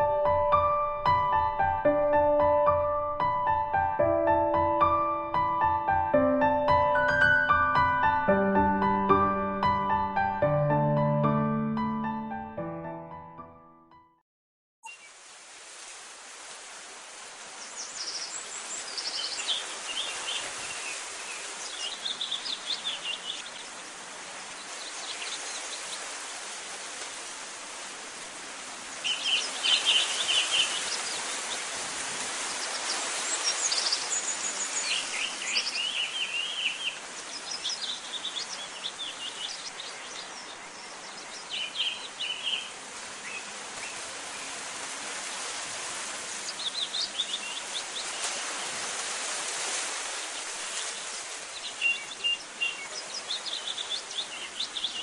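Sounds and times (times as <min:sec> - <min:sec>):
small birds chirping: 0:17.5 - 0:26.2, 0:28.9 - 0:44.6, 0:45.3 - 0:48.8, 0:50.1 - 0:55.0.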